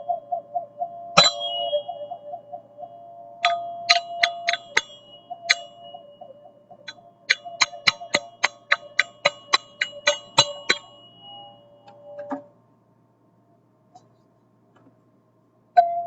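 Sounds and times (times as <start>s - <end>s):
metal percussion strikes ringing: 1.2s - 1.9s, 3.4s - 12.5s.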